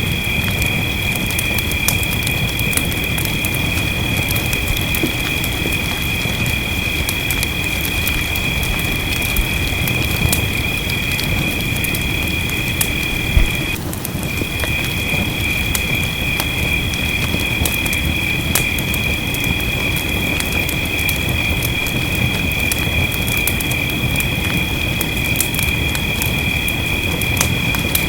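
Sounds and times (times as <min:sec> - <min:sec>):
fireplace crackling and popping: 0:00.0 - 0:28.0
rain rumbling: 0:00.0 - 0:28.0
low thump: 0:13.2 - 0:13.8.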